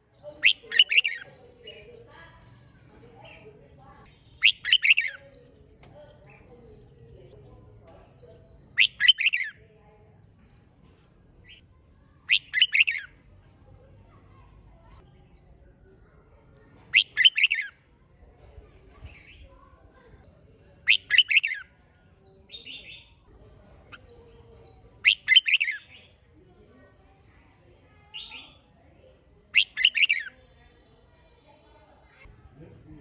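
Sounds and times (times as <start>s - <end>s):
bird singing bubbly phrases: 0.4s - 3.4s, 4.3s - 5.8s, 8.8s - 9.6s, 12.2s - 13.1s, 16.9s - 17.8s, 20.8s - 23.2s, 23.9s - 26.2s, 28.2s - 30.3s
faint high chirps: 2.4s - 6.9s.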